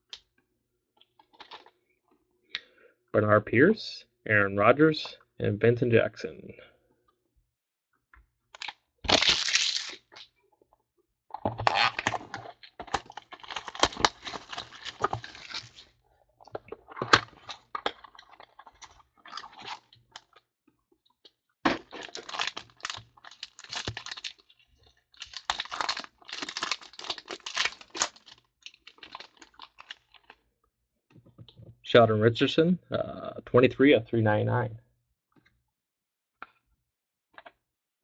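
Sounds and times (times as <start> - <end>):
card packaging tearing and crinkling: 8.6 - 10.3, 11.6 - 16.0, 17.0 - 20.3, 21.7 - 24.5, 25.2 - 30.3.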